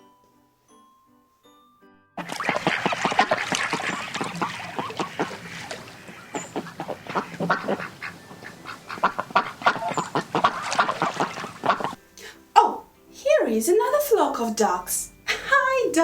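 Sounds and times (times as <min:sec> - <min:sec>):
ducks quacking: 0:02.2 - 0:12.0.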